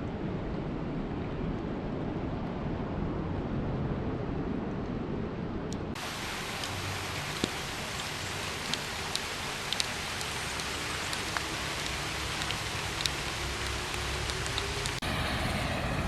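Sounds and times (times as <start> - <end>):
steady rain hiss: 6.0 - 15.3.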